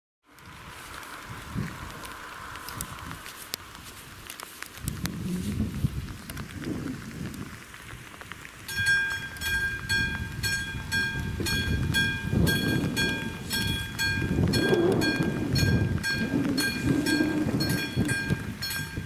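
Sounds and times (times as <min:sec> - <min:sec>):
level crossing bell ringing: 0:08.7 - 0:14.3.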